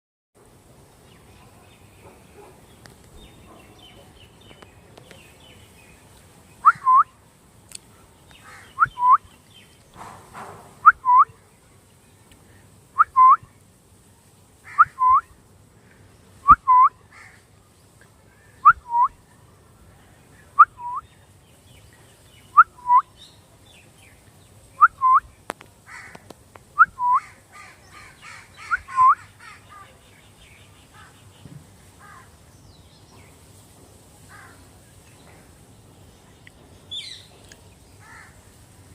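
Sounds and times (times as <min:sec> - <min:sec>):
parrot calling: 0:06.6 - 0:07.0.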